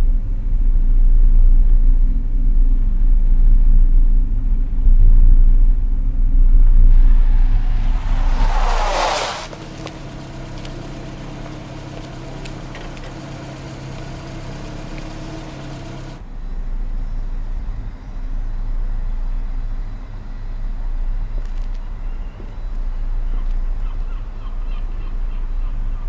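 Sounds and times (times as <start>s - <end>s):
vehicle engine running: 6.9s - 16.2s.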